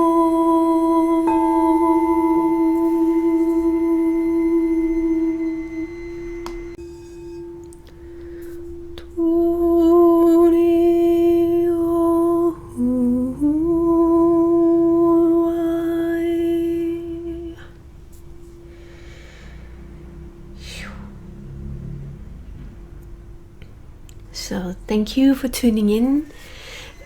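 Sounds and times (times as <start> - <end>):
woman humming: 0.0 - 6.8, 8.9 - 17.8, 20.5 - 21.5
singing bowl ringing: 0.0 - 21.6, 25.6 - 27.0.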